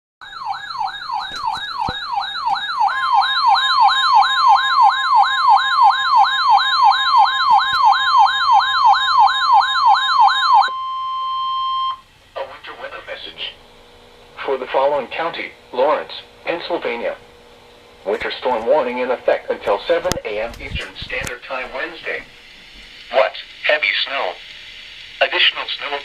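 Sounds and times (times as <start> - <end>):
fast warbling siren: 0.2 - 12.0
steady high alert tone: 0.2 - 12.0.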